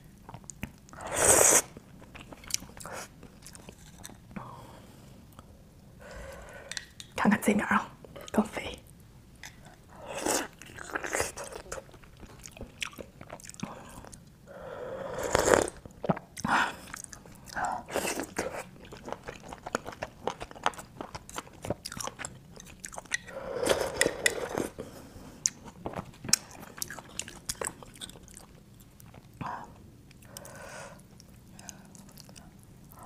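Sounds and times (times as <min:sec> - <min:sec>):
wet chewing and lip smacks: 0:10.5 - 0:14.3, 0:15.9 - 0:23.3, 0:25.4 - 0:29.4, 0:30.0 - 0:33.0.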